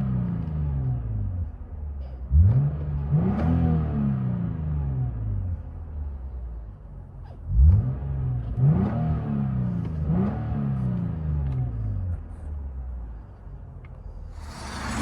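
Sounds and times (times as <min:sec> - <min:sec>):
car engine revving: 0:14.3 - 0:15.0.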